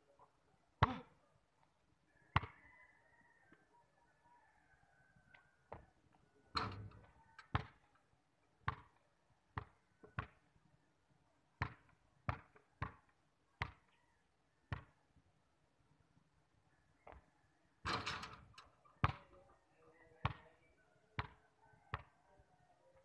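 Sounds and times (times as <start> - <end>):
basketball bouncing on concrete: 7.5 - 7.8, 8.7 - 9.0, 11.6 - 13.0, 19.0 - 19.3.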